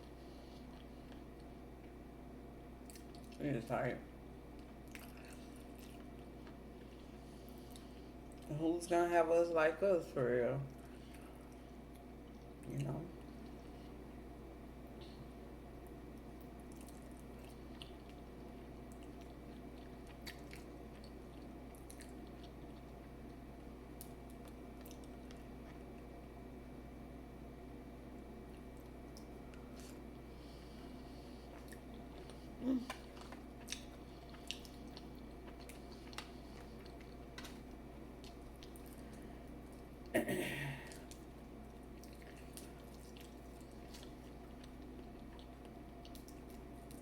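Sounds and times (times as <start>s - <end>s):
wet chewing and mouth sounds: 0.0s - 2.0s, 2.8s - 3.4s, 4.5s - 8.5s, 15.8s - 26.1s, 28.4s - 40.1s, 41.0s - 47.0s
steady low hum: 0.0s - 47.0s.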